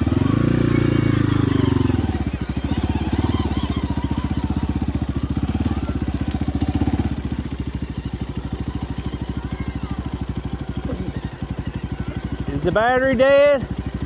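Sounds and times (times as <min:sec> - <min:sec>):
small gasoline engine idling: 0:00.0 - 0:14.0.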